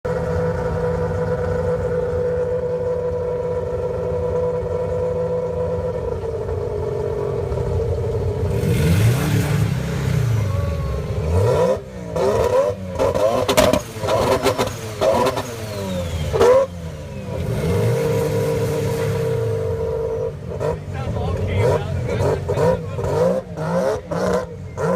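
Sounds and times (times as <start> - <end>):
rotary engine idling and revving: 0.0 - 24.9
engine limiter bangs and pops: 13.0 - 14.8.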